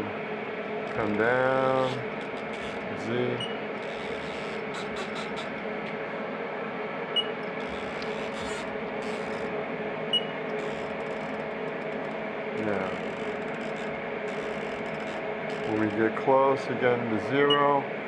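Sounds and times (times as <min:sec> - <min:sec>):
milling machine humming: 0:00.0 - 0:18.0.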